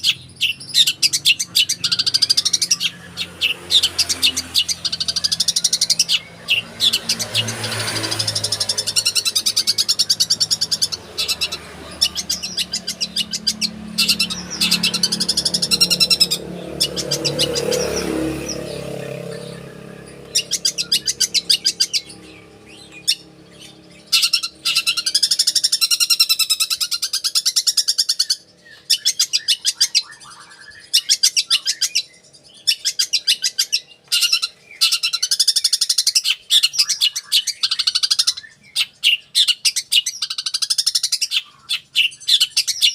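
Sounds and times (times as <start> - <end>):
shrike fast high chirping song: 0.0 - 28.2.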